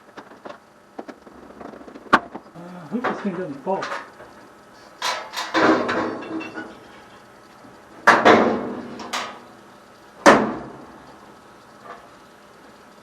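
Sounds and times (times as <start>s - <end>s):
sheet metal panels clanking: 3.0s - 7.2s, 8.0s - 9.6s.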